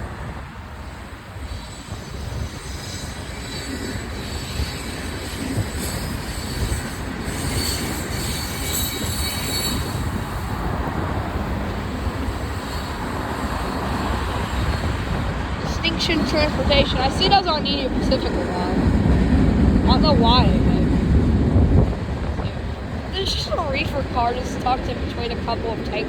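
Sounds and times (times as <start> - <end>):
train wheels rumbling on rails: 0.0 - 26.0
high wheel squeal: 1.5 - 10.6, 12.2 - 15.3.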